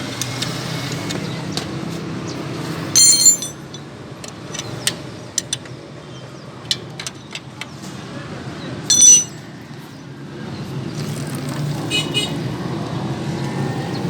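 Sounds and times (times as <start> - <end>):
ringing metallic clink: 3.0 - 3.9, 8.9 - 9.5
metal parts ticking and clicking: 3.0 - 5.8, 8.9 - 9.4.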